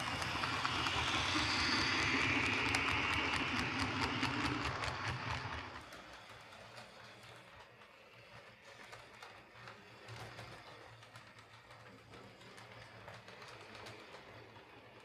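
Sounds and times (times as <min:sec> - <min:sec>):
model train motor hum: 0:00.0 - 0:15.0
wheels clicking over rail joints: 0:03.2 - 0:15.0.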